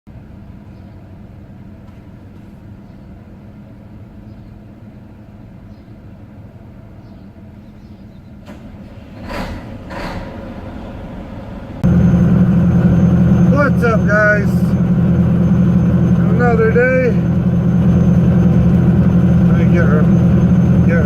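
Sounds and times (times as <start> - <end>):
truck diesel engine running: 10.3 - 21.0.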